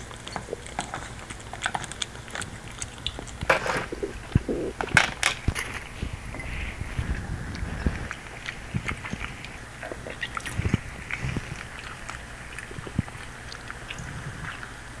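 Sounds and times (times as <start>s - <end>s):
chewing with clicks: 0.0s - 15.0s
short scratchy noise: 3.5s - 5.0s.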